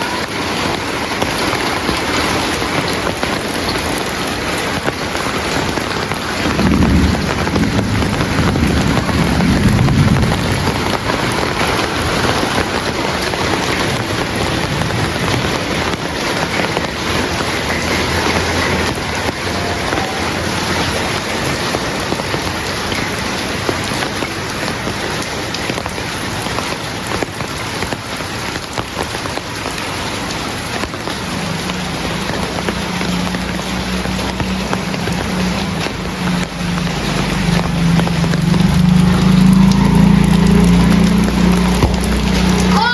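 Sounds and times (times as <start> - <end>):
heavy rain: 0.0 - 42.9
thunder rumble: 1.1 - 25.2, 30.7 - 42.9
low engine hum: 32.2 - 42.8.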